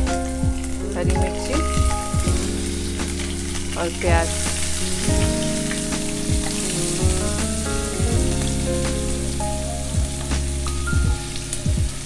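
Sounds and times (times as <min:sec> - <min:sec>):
soft background music: 0:00.0 - 0:12.0
onion sizzling in hot oil: 0:00.2 - 0:12.0.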